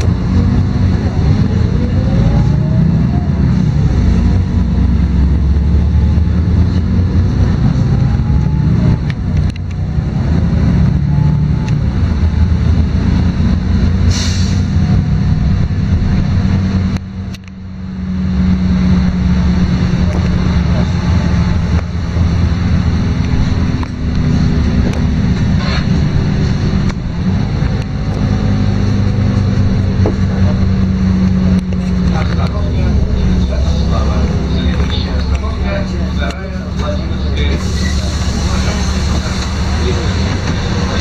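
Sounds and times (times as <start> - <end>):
bus engine rumble: 0.0 - 41.0
short hiss of air: 14.1 - 14.7.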